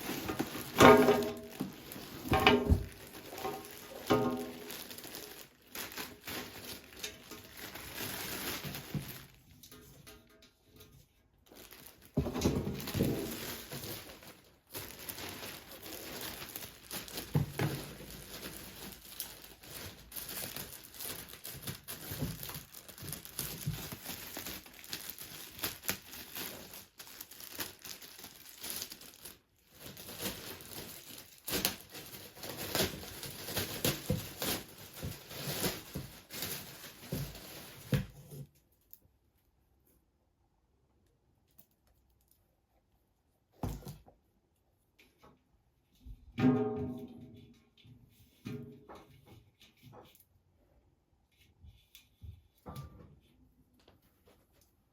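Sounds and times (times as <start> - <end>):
packaging crinkling: 0.0 - 9.6, 11.4 - 38.1.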